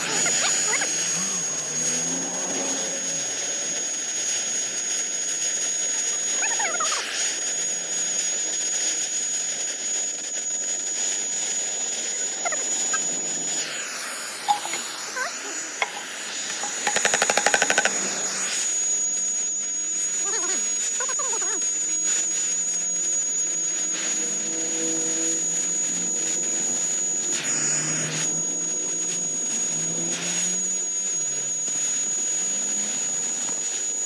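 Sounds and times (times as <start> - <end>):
engine starting and running: 0.0 - 4.4
high whine: 0.0 - 19.4, 21.6 - 34.0.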